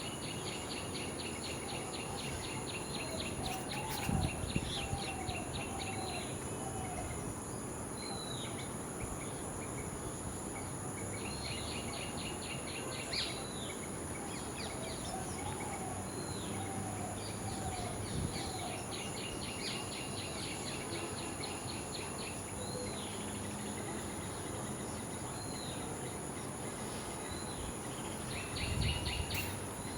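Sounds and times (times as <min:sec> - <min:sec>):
high insect drone: 0:00.0 - 0:29.9
birds chirping and whistling: 0:28.3 - 0:29.9.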